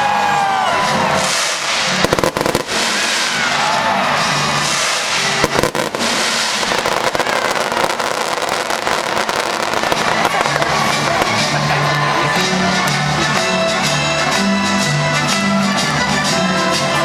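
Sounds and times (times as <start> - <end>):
fireworks bursting and crackling: 0.6 - 14.3
loud fireworks bangs: 0.9 - 12.1.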